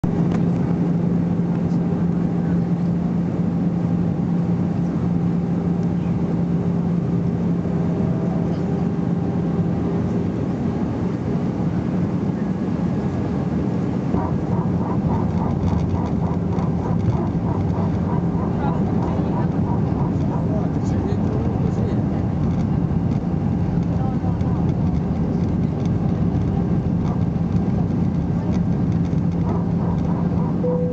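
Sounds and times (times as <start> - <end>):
airplane cabin engine drone: 0.0 - 30.9.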